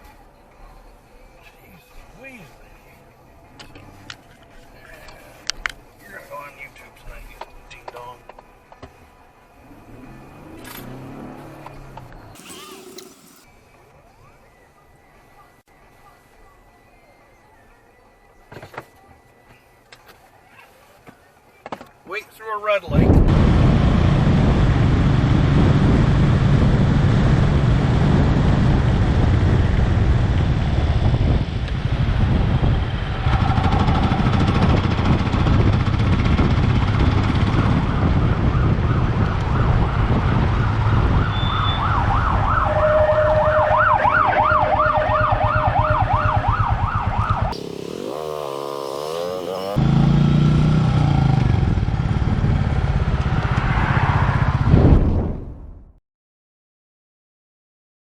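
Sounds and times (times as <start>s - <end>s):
car road and engine rumble: 6.7s - 13.5s, 46.2s - 54.7s
emergency siren warbling: 41.5s - 49.8s.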